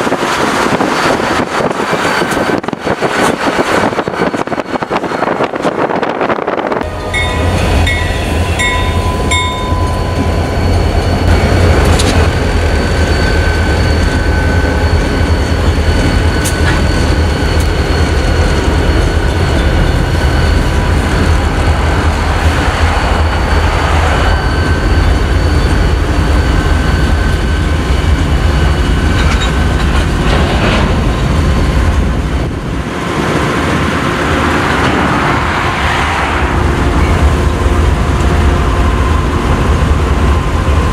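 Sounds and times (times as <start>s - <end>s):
freight train rumbling past: 0.0s - 40.9s
train knocks: 0.0s - 40.9s
high-pitched whine: 6.5s - 40.9s.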